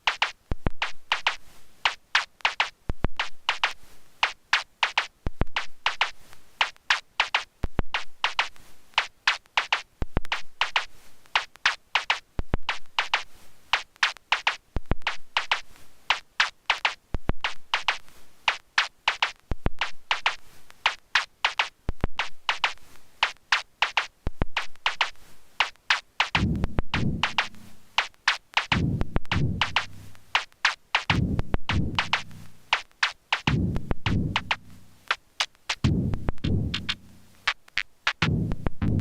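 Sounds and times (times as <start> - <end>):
drum machine hat and snare hits: 0.0 - 39.0
deep kick drum hits: 26.4 - 27.4, 31.1 - 32.2, 33.5 - 34.5, 35.9 - 37.0, 38.2 - 39.0.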